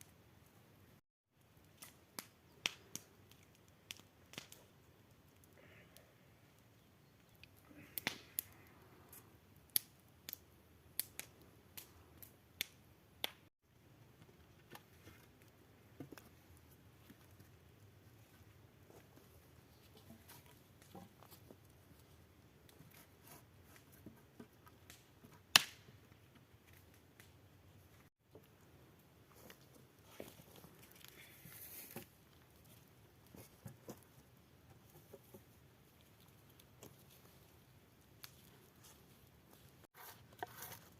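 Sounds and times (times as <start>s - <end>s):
sharp irregular clicks and snaps: 1.6s - 6.1s, 7.2s - 13.5s.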